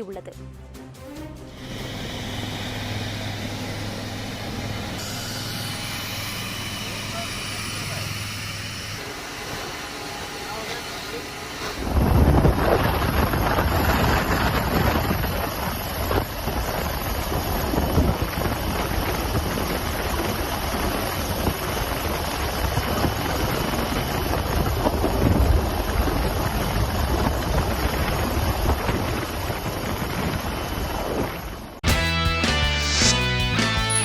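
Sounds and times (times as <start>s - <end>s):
helicopter rotor and engine roar: 1.6s - 28.6s
wind buffeting microphone: 11.8s - 31.6s.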